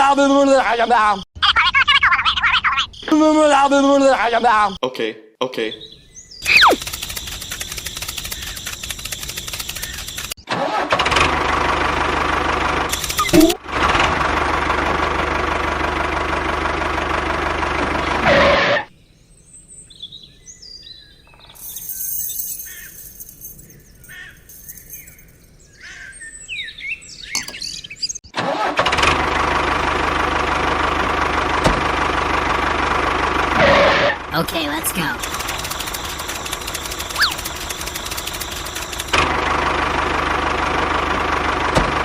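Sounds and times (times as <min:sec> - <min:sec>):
motor running steadily: 0:06.4 - 0:10.4, 0:35.2 - 0:41.4
scattered quiet sounds: 0:06.4 - 0:10.4, 0:35.0 - 0:39.2.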